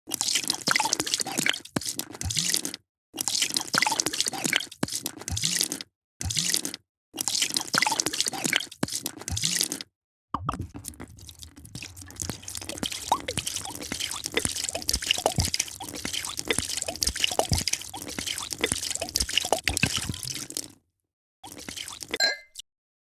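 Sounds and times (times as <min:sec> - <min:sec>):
drink pouring and splashing: 0:00.1 - 0:02.6, 0:03.2 - 0:05.7, 0:07.2 - 0:09.8, 0:10.4 - 0:20.8, 0:21.4 - 0:22.6
small plops and drips: 0:10.4 - 0:20.8, 0:21.4 - 0:22.6.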